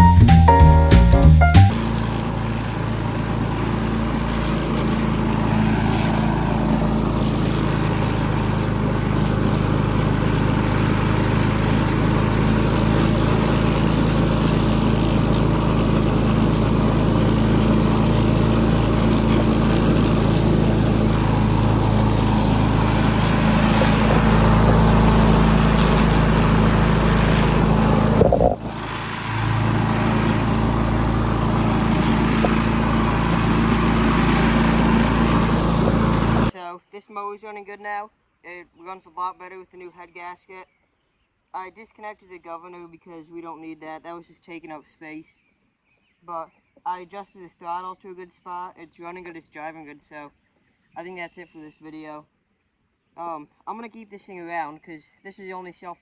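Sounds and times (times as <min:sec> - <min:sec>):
push mower engine running: 0:00.0 - 0:36.6.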